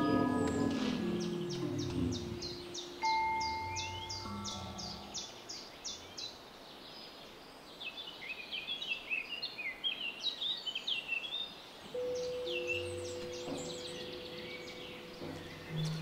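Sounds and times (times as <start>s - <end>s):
birds chirping: 0.0s - 16.0s
steady pitched tone: 12.0s - 16.0s.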